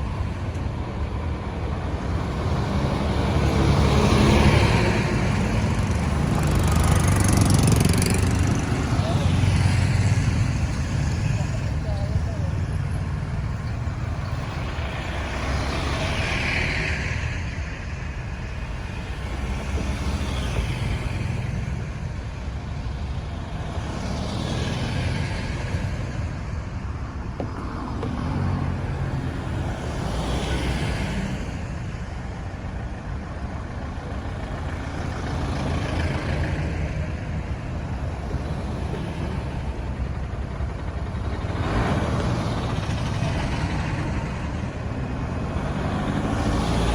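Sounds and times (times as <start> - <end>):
traffic rumble: 0.0 - 46.9
vehicle passing: 1.8 - 17.0, 40.9 - 46.9.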